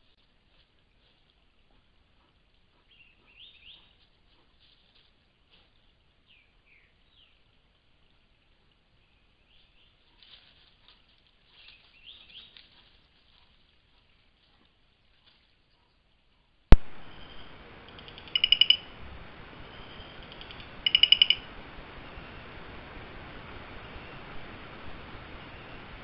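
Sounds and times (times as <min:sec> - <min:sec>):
soft rustles and ticks: 0:00.0 - 0:06.4, 0:09.5 - 0:16.8
low hiss: 0:16.7 - 0:26.0
faint bird chirps: 0:16.9 - 0:22.5.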